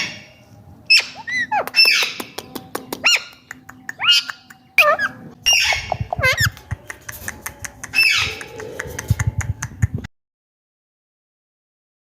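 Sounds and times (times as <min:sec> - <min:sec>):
parrot squawking: 0:00.9 - 0:02.2, 0:03.0 - 0:06.6, 0:07.9 - 0:08.7.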